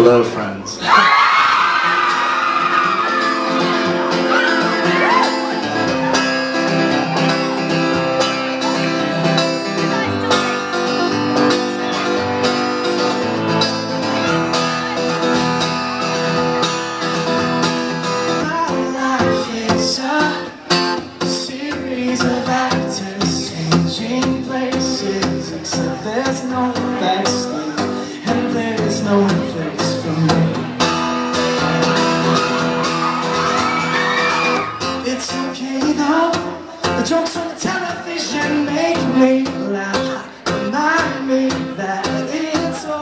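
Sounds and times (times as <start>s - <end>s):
acoustic guitar strumming chords: 1.4s - 43.0s.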